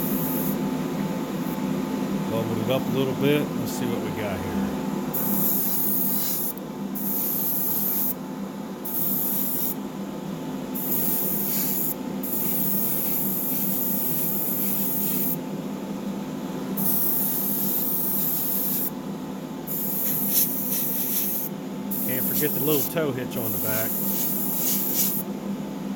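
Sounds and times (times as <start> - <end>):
airbrush spraying paint: 0.0 - 0.6, 5.1 - 8.2, 8.9 - 9.8, 10.8 - 15.4, 16.8 - 18.9, 19.7 - 25.3.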